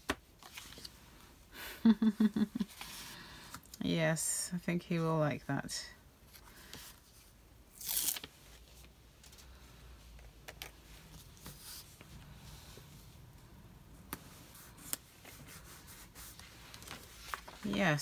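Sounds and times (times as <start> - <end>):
paper rustling: 14.6 - 18.0.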